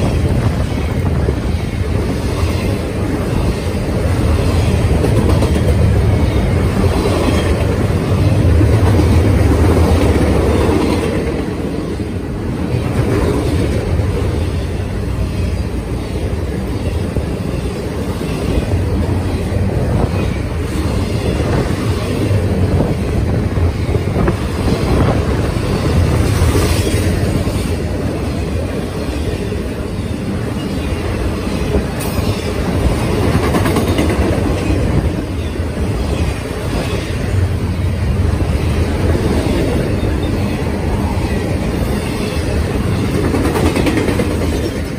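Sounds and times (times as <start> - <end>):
freight train wheels rumbling on rail: 0.0 - 44.9.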